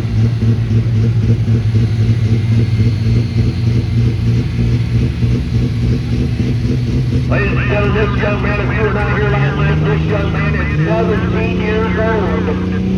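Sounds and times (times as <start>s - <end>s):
truck engine droning: 0.0s - 12.9s.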